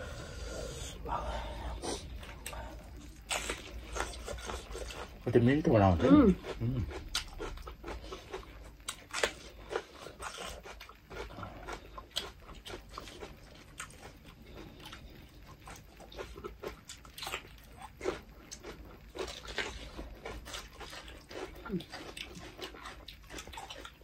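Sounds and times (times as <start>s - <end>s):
bell pepper crunched and chewed: 2.0s - 24.0s.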